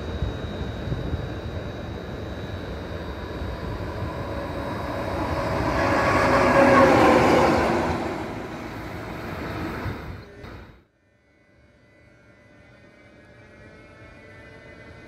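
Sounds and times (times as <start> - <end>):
train passing by: 0.8 - 10.7.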